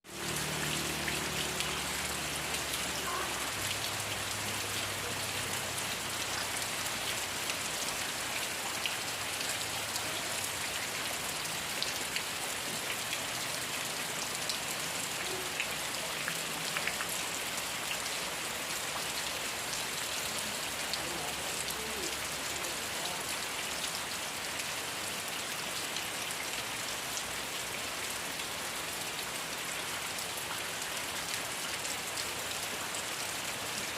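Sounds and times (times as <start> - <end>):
raindrops ticking on surfaces: 0.0 - 33.9
steady rain falling: 0.0 - 33.9.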